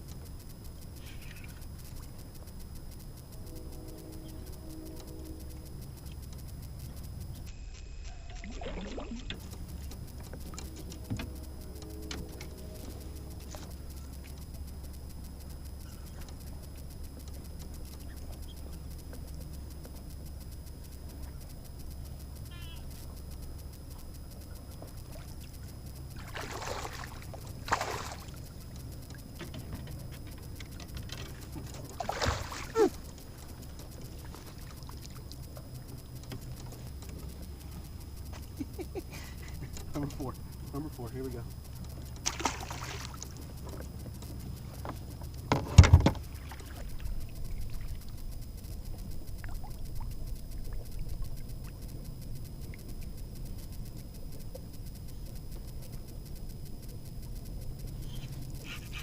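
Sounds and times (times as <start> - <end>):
faint ticks and scratches: 0.0 - 59.0
steady low rumble: 0.0 - 59.0
water splashing beside kayak: 8.3 - 14.8, 23.7 - 38.5, 39.4 - 53.6.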